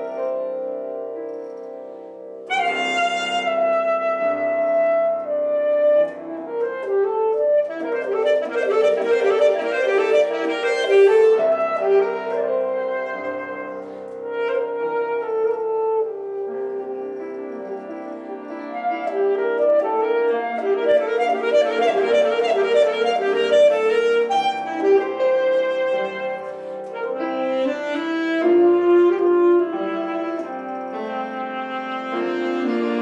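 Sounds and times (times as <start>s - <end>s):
piano accompaniment: 0.0s - 33.0s
alto saxophone melody: 2.4s - 33.0s.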